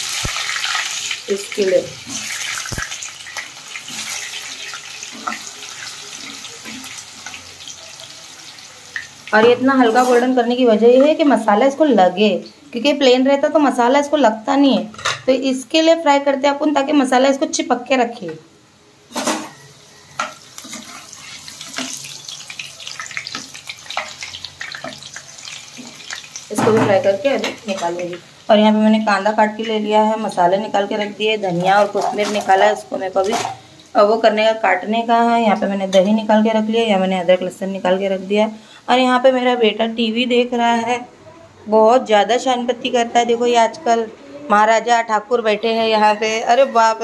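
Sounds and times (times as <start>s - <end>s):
food sizzling in hot oil: 0.0s - 12.8s, 19.0s - 39.2s.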